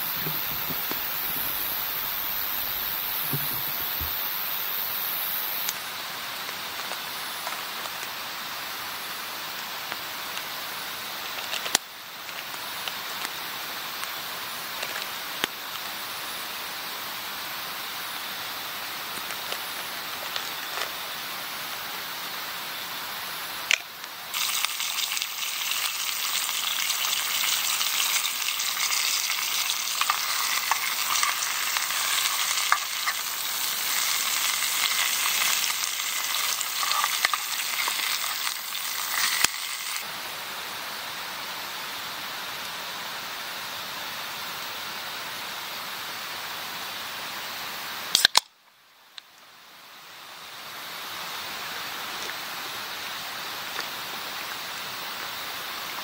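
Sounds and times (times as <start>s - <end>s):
sharp pops: 0.0s - 4.8s
food sizzling in a pan: 0.0s - 42.3s
steady background hiss: 0.0s - 56.0s.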